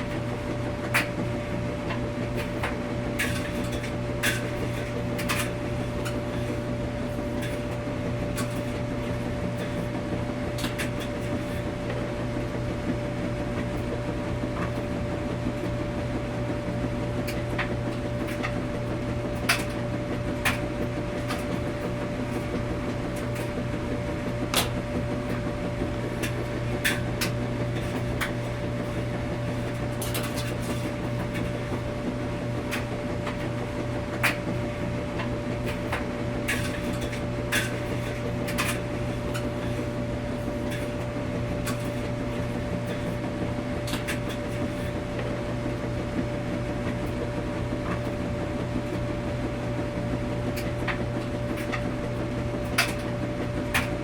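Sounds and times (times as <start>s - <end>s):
washing machine humming: 0.0s - 54.0s.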